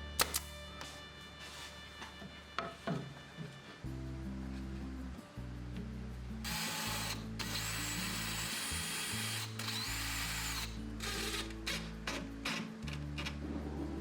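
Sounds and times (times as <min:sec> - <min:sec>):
background music with bass line: 0:00.0 - 0:14.0
power drill running: 0:06.5 - 0:11.9.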